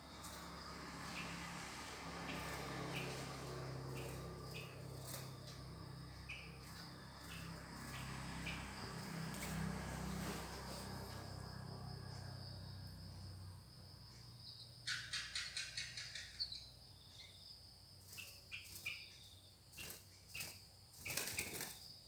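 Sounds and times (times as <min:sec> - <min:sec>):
crickets chirping: 0:00.0 - 0:22.0
bird chattering calls: 0:14.8 - 0:16.7.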